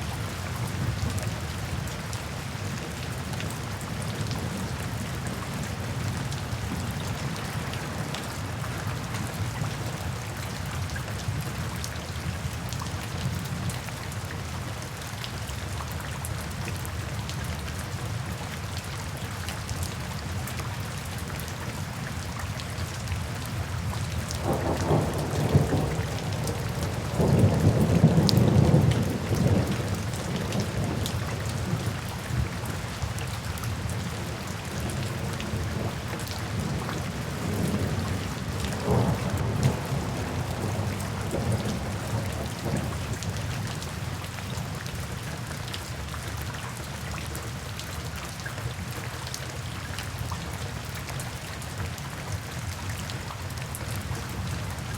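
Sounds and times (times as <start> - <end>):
steady rain falling: 0.0 - 54.9
thunder rumbling: 24.4 - 31.9, 36.6 - 43.1.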